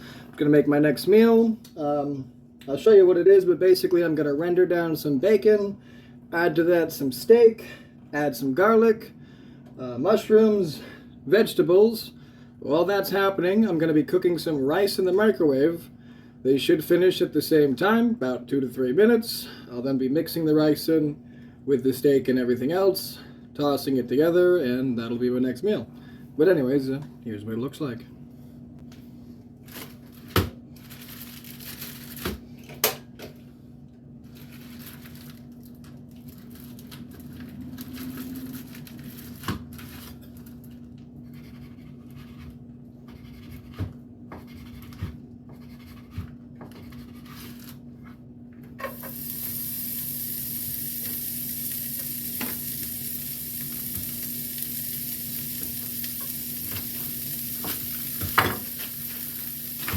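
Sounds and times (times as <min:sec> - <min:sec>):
bacon sizzling in a frying pan: 0:48.8 - 0:59.9.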